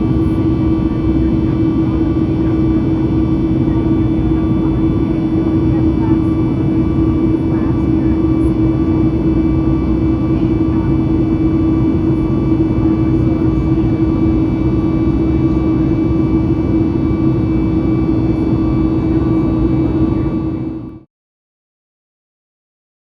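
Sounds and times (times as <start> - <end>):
jet engines and rushing air in cabin: 0.0 - 21.1.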